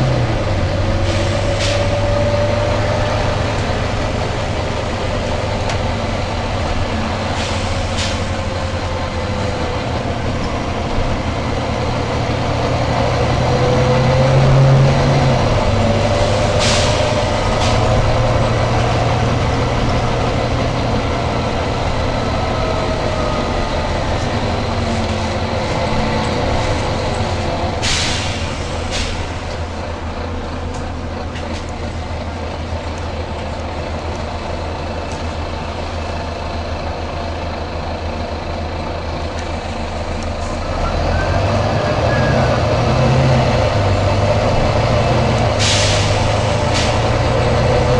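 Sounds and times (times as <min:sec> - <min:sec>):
bus engine running: 0:00.0 - 0:47.9
air brake hissing: 0:01.0 - 0:02.1, 0:07.2 - 0:08.5, 0:16.2 - 0:18.3, 0:27.7 - 0:29.6, 0:45.6 - 0:47.2.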